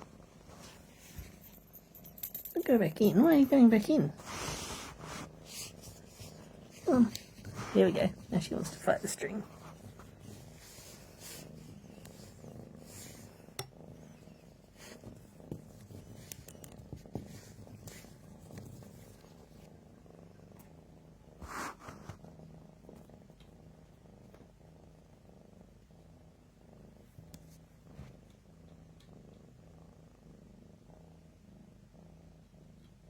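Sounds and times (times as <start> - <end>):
rustling: 0.0 - 19.7
cat purring: 0.0 - 33.0.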